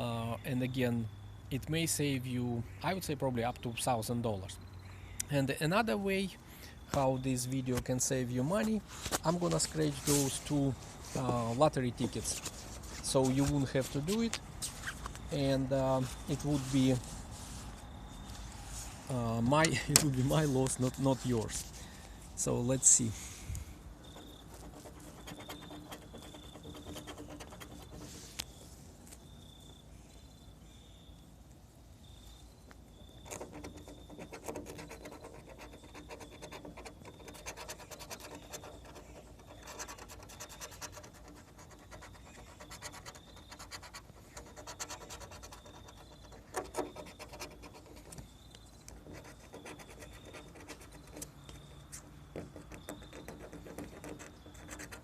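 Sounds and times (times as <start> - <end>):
lottery ticket being scratched: 8.4 - 17.8, 18.7 - 21.8, 24.2 - 28.4, 33.3 - 48.2.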